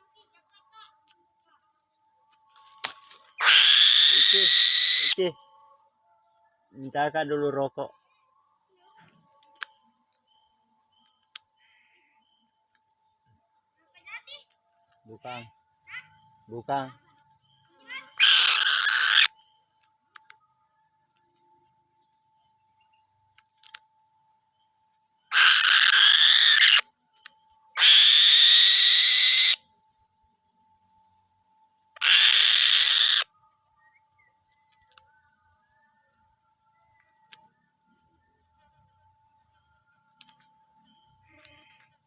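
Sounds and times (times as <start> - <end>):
bird harsh screeching calls: 3.4 - 5.4, 17.8 - 19.4, 25.3 - 26.9, 27.8 - 29.7, 32.0 - 33.3.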